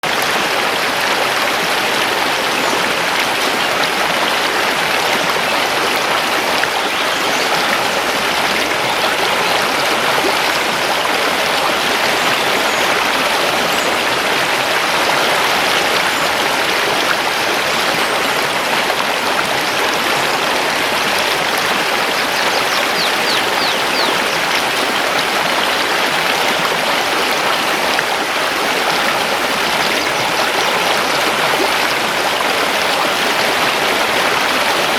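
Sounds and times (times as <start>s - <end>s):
river rushing over stones: 0.0s - 34.9s
faint high bird chirps: 22.4s - 24.3s.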